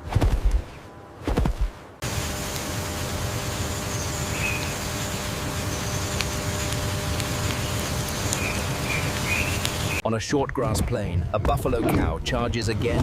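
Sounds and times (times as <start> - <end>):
steady rumbling hiss: 1.8 - 10.0
faint high insect buzz: 2.0 - 10.0.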